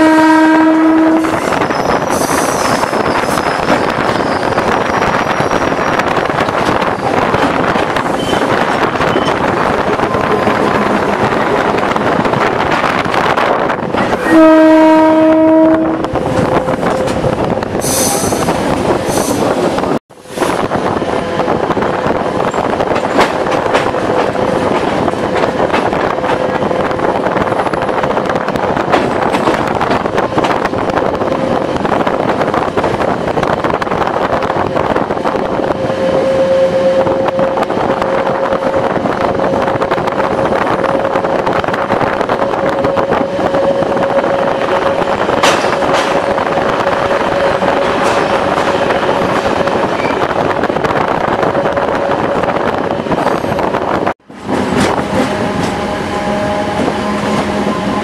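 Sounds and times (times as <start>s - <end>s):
train horn blast: 0.0s - 1.6s, 14.1s - 18.4s, 35.7s - 39.6s, 42.2s - 45.6s, 55.2s - 58.0s
train rumble and rattle: 0.0s - 58.0s.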